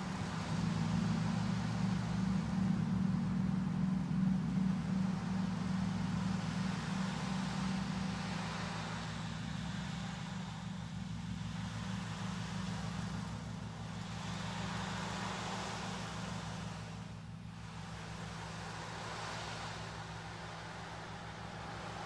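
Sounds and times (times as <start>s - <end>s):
low sound bath drone: 0.0s - 22.0s
soft hiss: 0.0s - 22.0s.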